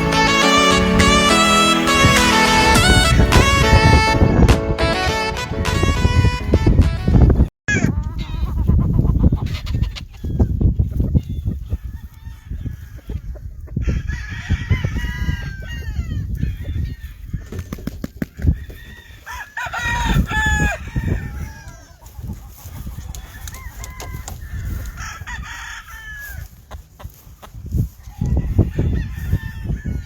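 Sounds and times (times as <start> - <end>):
roosters crowing: 0.0 - 4.2, 11.6 - 30.0
chickens clucking: 0.0 - 4.7, 7.2 - 30.0.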